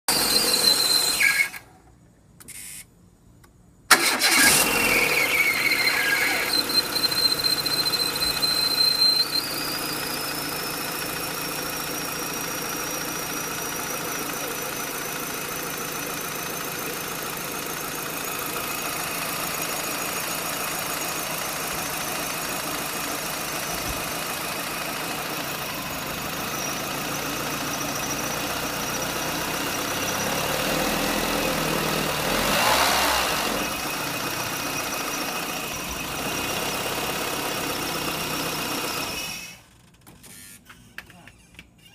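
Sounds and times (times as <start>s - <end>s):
car engine starting and idling: 0.1s - 1.8s, 3.8s - 40.4s.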